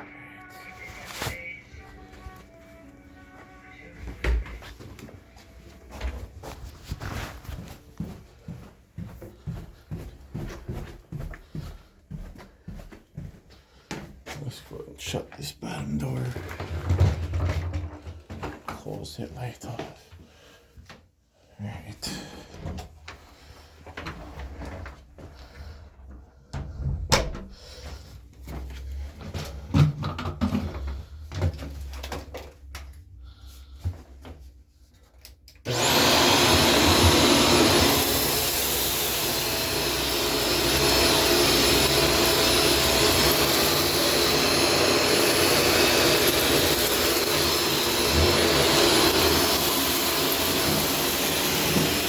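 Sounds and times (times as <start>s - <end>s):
vacuum cleaner running: 0.0s - 13.3s, 35.6s - 52.0s.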